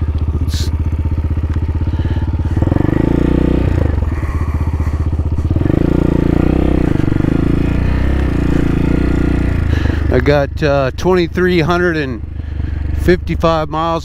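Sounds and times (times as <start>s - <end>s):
motorcycle engine idling and revving: 0.0s - 14.0s.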